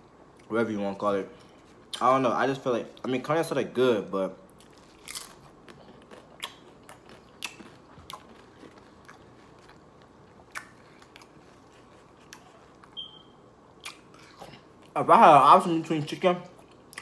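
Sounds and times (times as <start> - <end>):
man chewing food: 4.5 - 15.0, 16.5 - 17.0
short squeak: 13.0 - 13.4.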